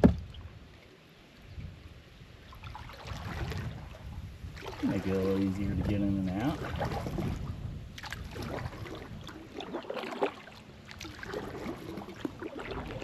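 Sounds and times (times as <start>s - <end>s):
knocks on kayak: 0.0s - 0.3s
water splashing around kayak: 0.0s - 13.0s.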